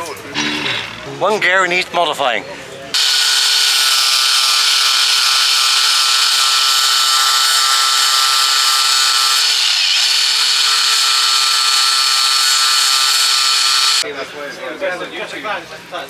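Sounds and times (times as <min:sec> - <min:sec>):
angle grinder on metal: 0:03.0 - 0:14.0.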